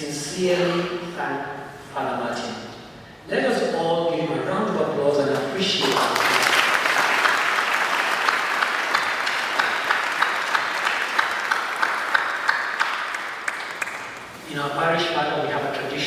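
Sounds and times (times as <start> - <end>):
sharp single claps: 5.8 - 14.3
congregation applauding: 5.8 - 14.4.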